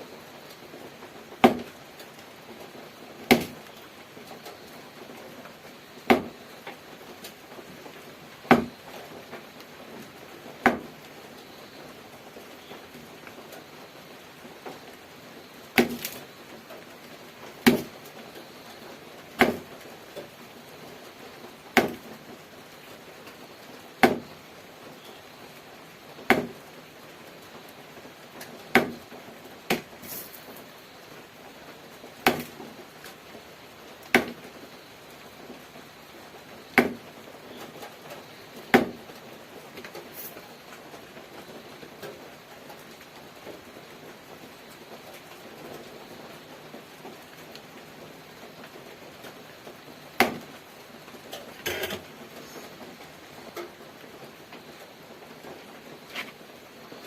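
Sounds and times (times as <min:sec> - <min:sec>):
faint steady hiss: 0:00.0 - 0:57.0.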